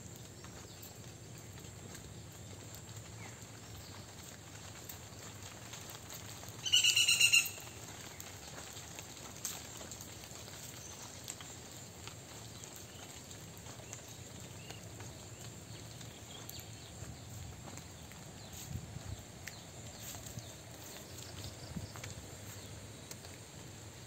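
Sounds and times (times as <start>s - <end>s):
bird call rapid notes: 6.6s - 7.7s
footsteps on brick path: 7.4s - 24.0s.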